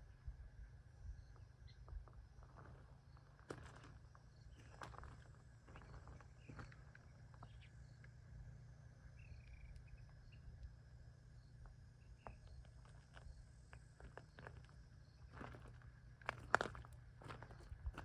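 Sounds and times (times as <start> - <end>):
footsteps on gravel: 2.4 - 6.9, 12.2 - 18.0
bird chirps: 9.2 - 10.6.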